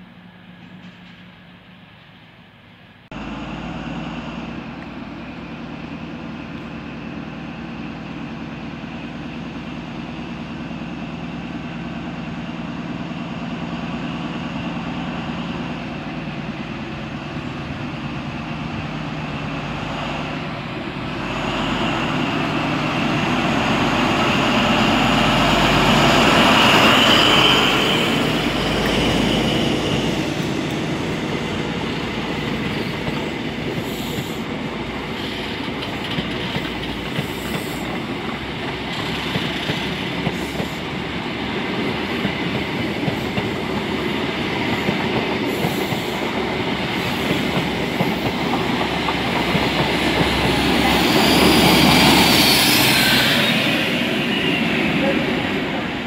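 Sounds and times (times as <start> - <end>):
train rumbling on tracks: 0.0 - 56.0
high train squeal: 21.0 - 41.2, 42.0 - 56.0.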